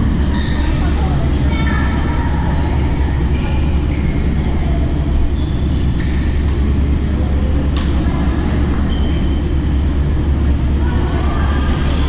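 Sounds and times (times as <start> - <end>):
shoe squeaks on court: 8.9 - 9.4.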